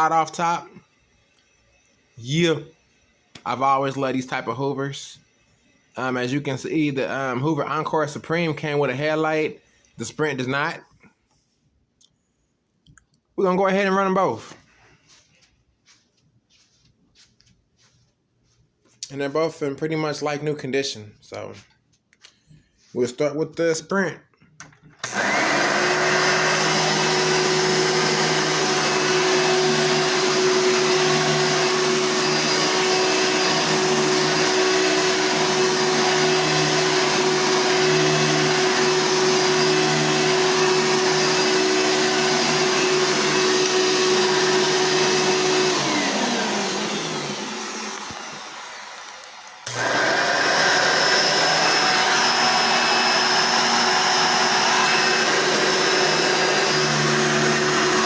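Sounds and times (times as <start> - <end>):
higher-pitched vacuum cleaner: 0.0 - 7.9, 25.0 - 58.0
upright vacuum cleaner running: 0.0 - 9.2, 25.0 - 58.0
vacuum winding down: 25.0 - 58.0.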